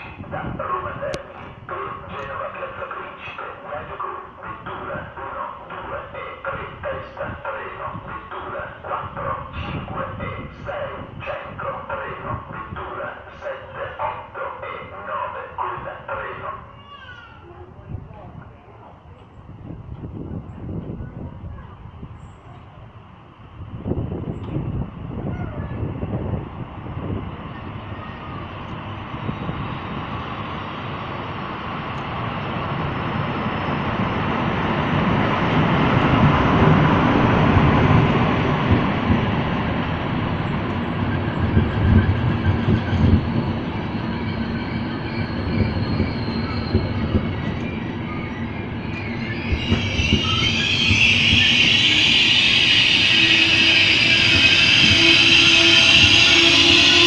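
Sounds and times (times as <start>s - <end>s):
train wheels rumbling and knocking: 0.0s - 17.2s, 19.1s - 57.0s
high-pitched brake squeal: 41.1s - 57.0s.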